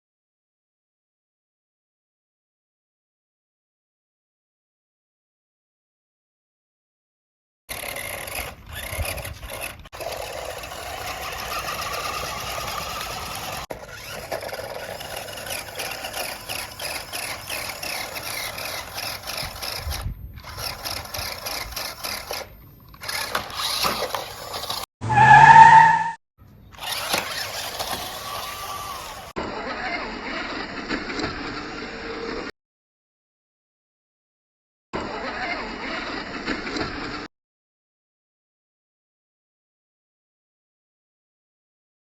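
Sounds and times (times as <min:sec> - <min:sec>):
toy motors whirring: 0:07.7 - 0:24.9, 0:26.7 - 0:32.5
toy wheels scraping: 0:07.7 - 0:26.2, 0:26.8 - 0:32.5, 0:35.0 - 0:37.3
loud tonal blast: 0:25.0 - 0:26.2.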